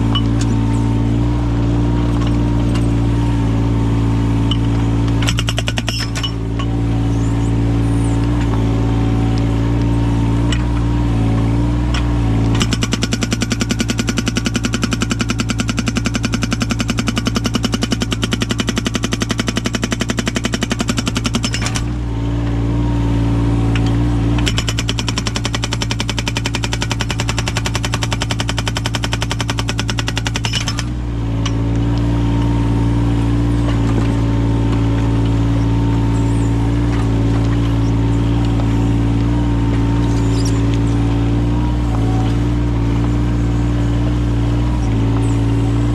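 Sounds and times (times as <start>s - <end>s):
excavator engine running: 0.0s - 45.9s
hydraulic breaker hammering wood: 4.5s - 6.5s, 12.4s - 22.0s, 24.4s - 31.6s.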